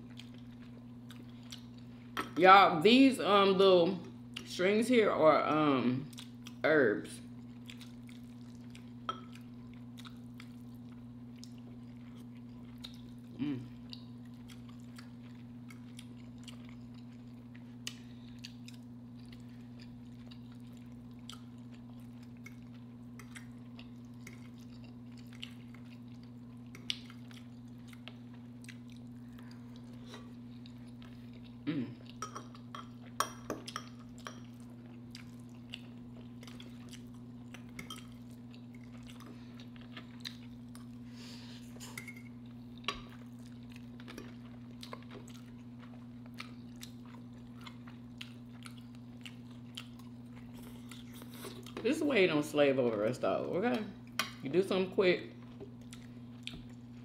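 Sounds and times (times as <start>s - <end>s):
close chewing: 33.7s - 41.1s, 42.6s - 51.8s.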